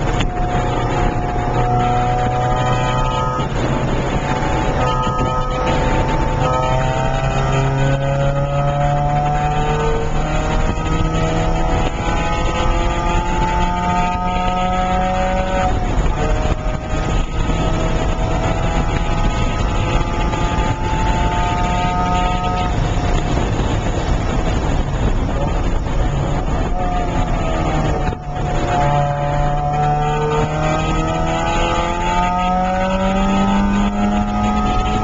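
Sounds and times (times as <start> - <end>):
car engine accelerating: 0.0 - 35.0.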